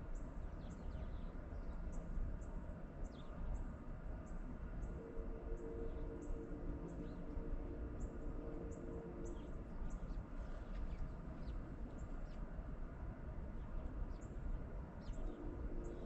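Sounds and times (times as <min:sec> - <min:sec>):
steady hum: 0:00.0 - 0:16.0
low rumble: 0:04.7 - 0:11.3.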